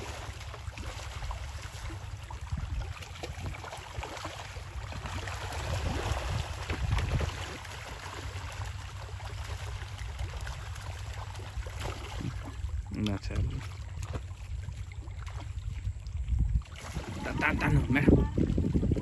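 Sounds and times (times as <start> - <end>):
water splashing and sloshing: 0.0 - 19.0
steady low rumble: 4.6 - 19.0.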